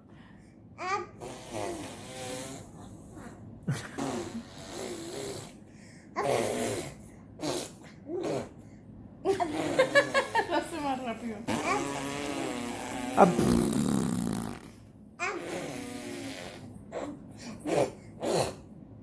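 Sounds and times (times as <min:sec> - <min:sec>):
baby blowing raspberries: 0:11.5 - 0:14.8, 0:15.4 - 0:18.7.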